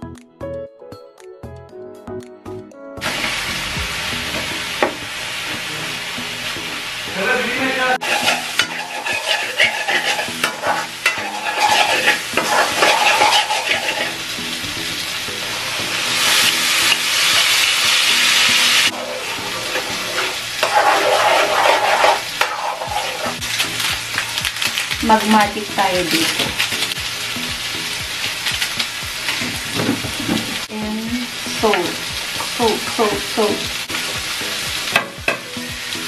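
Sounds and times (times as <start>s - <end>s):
bitter gourd sizzling in oil: 3.0s - 36.0s
spatula scraping a pan: 8.0s - 14.3s, 18.8s - 23.5s.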